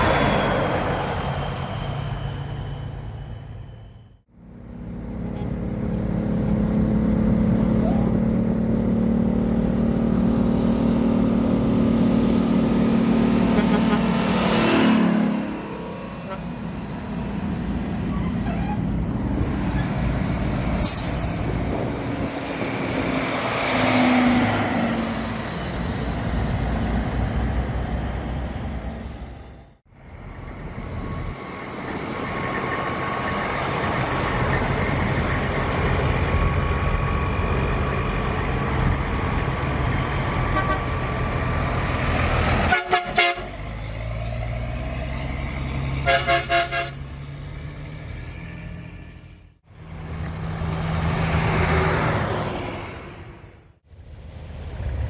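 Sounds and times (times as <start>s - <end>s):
truck engines running: 0.0s - 55.0s
horn toots: 13.4s - 14.2s, 40.5s - 41.0s, 42.7s - 43.5s, 46.0s - 47.0s.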